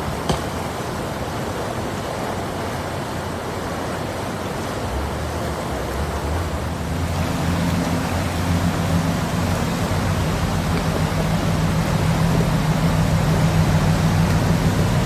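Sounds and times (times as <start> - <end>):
rushing storm water: 0.0 - 15.0
low rumble: 4.9 - 15.0.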